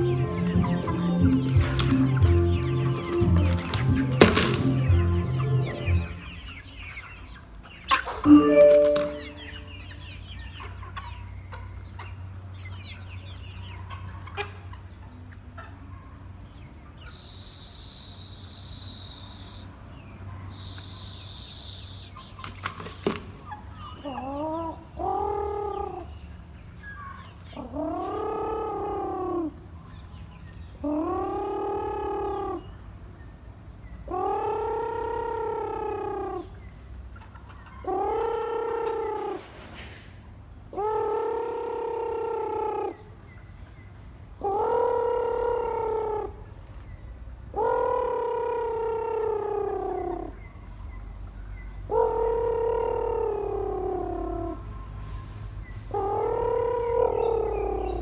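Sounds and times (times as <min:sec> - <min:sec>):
chicken calling: 0:00.0 - 0:12.1, 0:20.5 - 0:26.2, 0:27.0 - 0:29.7, 0:30.8 - 0:32.9, 0:34.0 - 0:39.5, 0:40.8 - 0:43.3, 0:47.5 - 0:50.4, 0:51.9 - 0:54.7, 0:55.9 - 0:58.0.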